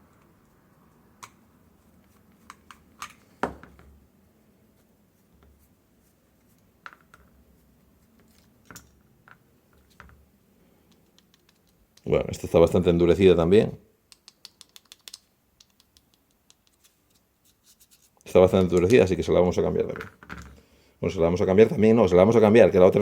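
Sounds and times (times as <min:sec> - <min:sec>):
small parts clicking and tapping: 0:00.0 - 0:03.9, 0:08.2 - 0:10.2, 0:10.8 - 0:12.1, 0:14.1 - 0:17.2.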